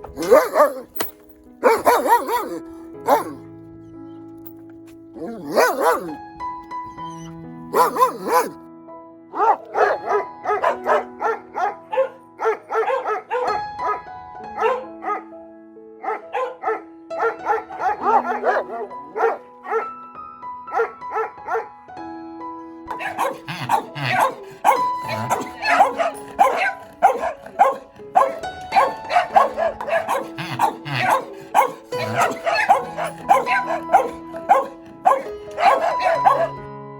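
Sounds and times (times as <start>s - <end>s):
dog barking: 0.0s - 1.0s, 1.6s - 3.4s, 5.2s - 6.2s, 7.7s - 8.6s, 9.4s - 15.3s, 16.0s - 20.0s, 20.7s - 21.7s, 22.9s - 36.6s
music with long held notes: 0.0s - 36.9s.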